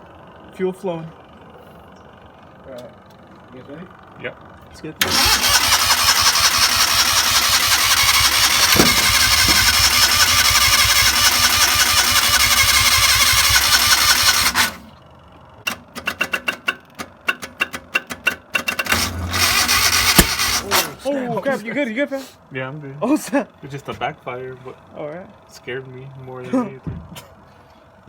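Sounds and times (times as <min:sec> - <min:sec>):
engine backfiring sharp pops: 0:05.0 - 0:14.8, 0:15.7 - 0:20.8
starter cranking engine: 0:05.0 - 0:14.8, 0:15.7 - 0:21.1.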